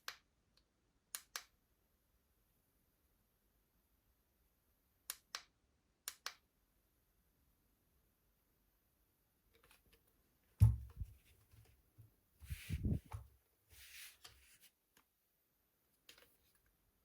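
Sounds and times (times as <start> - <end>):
soft thuds: 10.6 - 11.2.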